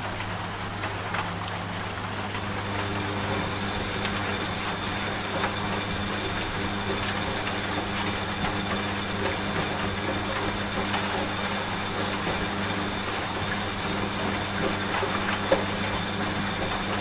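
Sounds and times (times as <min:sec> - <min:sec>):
rain falling: 0:00.0 - 0:15.9
washing machine humming: 0:00.0 - 0:17.0.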